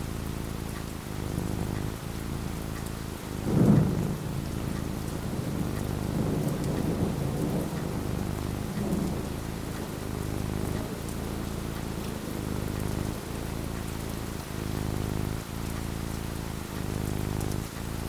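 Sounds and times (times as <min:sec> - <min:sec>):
rain falling: 0:00.0 - 0:18.0
rolling thunder rumble: 0:03.3 - 0:13.5
thunderclap: 0:03.4 - 0:11.0.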